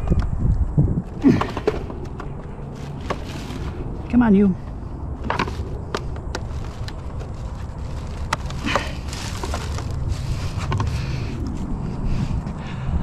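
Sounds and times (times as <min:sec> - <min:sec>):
low rumble: 0:00.0 - 0:13.0
scraping and rustling: 0:01.3 - 0:04.1, 0:05.2 - 0:11.6.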